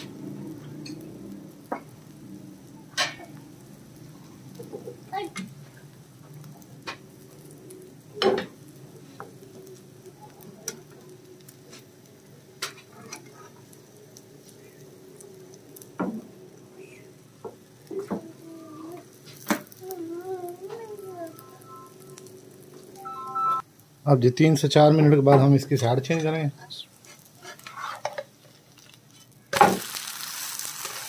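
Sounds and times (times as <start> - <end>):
roti sizzling in a frying pan: 0.0 - 31.0
metal spatula tapping and scraping: 27.1 - 28.3.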